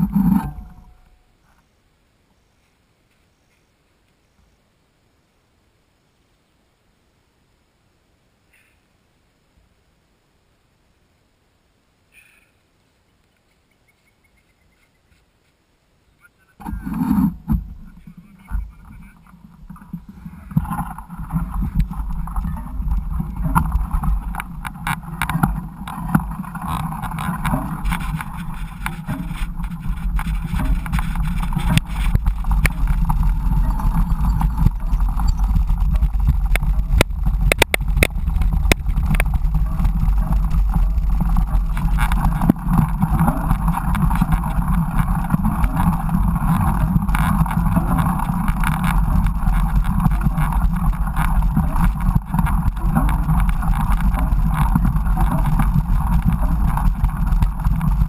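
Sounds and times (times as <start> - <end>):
wind rumble on microphone: 0.0 - 1.0, 16.6 - 58.0
bike rattling clicks: 20.6 - 58.0.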